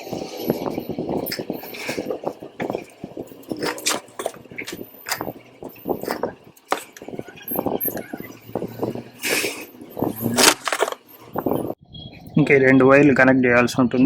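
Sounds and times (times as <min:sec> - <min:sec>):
hands handling wires and plastic parts: 0:01.3 - 0:07.2, 0:10.1 - 0:11.1.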